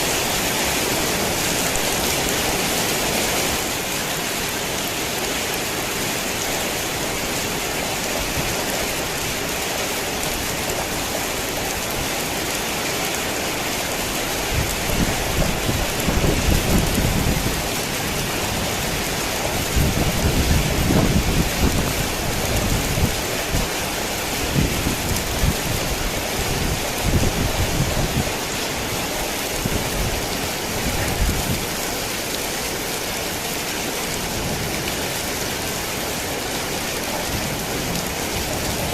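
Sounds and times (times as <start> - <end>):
heavy rain falling: 0.0 - 38.9
low rolling thunder: 14.5 - 23.7.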